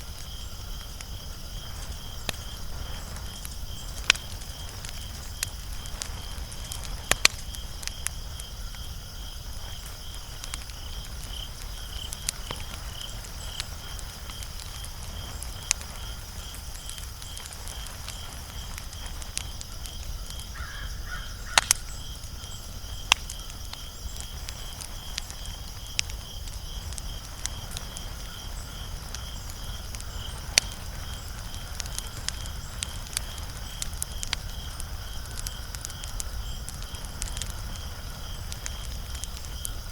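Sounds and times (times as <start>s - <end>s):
fire popping: 0.0s - 39.9s
wood fire crackling: 0.0s - 39.9s.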